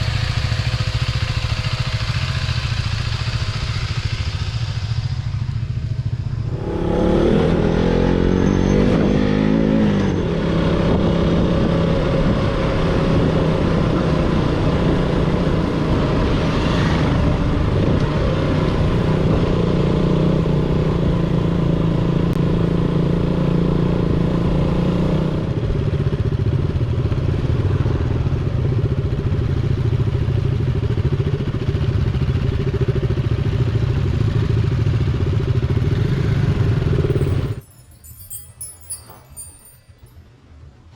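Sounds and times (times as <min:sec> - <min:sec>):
motorcycle engine revving: 0:00.0 - 0:25.6, 0:34.0 - 0:39.7.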